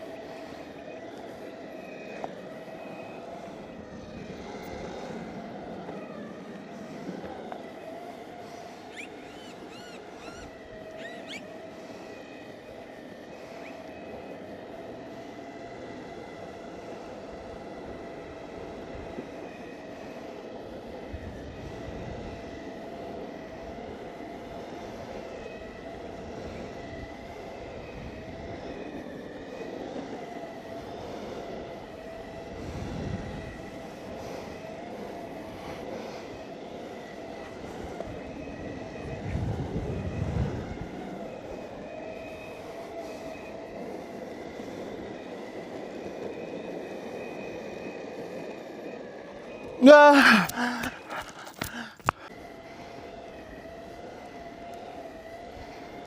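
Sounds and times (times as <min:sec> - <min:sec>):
electric motor whine: 0:00.0 - 0:14.7
wheels rolling on pavement: 0:00.0 - 0:49.8, 0:50.5 - 0:56.0
bird chirps: 0:08.9 - 0:11.5
wind rumbling on microphone: 0:14.4 - 0:49.8.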